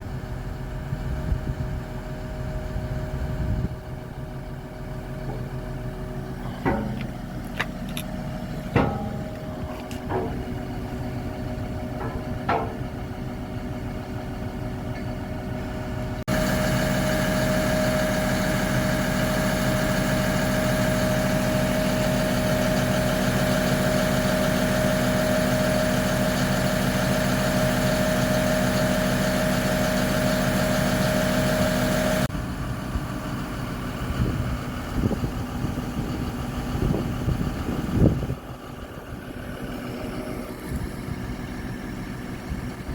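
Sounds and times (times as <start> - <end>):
diesel engine idling: 0.0 - 42.9
short metallic knocks: 6.4 - 7.8, 8.7 - 10.7, 11.9 - 13.0.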